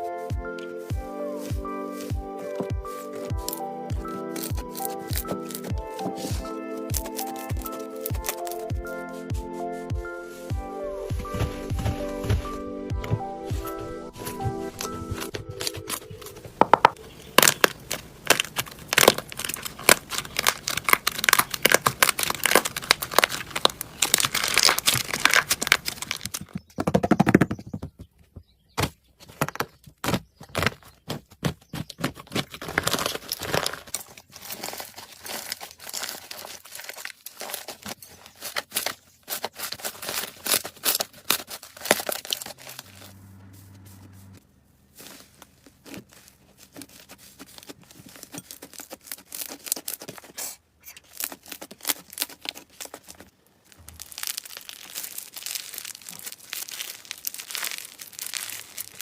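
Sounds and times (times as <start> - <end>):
slime squished by hand: 17.2 - 26.3, 45.0 - 59.0.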